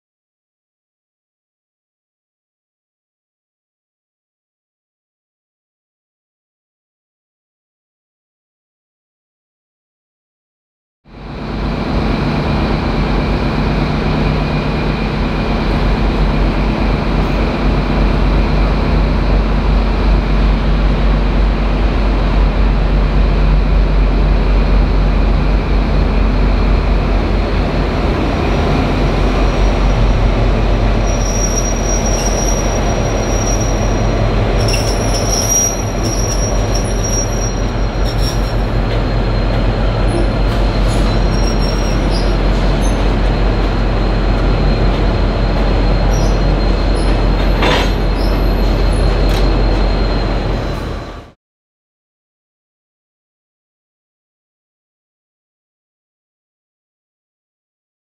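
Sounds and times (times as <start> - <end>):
locomotive engine running: 11.1 - 51.3
wheels squealing on rails: 24.7 - 51.4.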